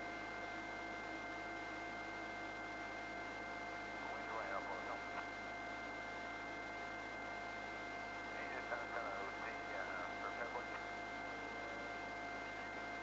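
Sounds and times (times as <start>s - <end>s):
faint constant tones: 0.0s - 13.0s
radio hiss: 4.0s - 5.3s, 8.3s - 12.8s.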